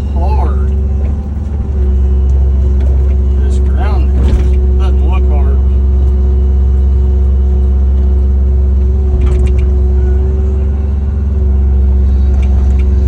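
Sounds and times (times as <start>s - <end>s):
excavator diesel engine running: 0.0s - 13.0s
metal clank: 4.0s - 4.8s.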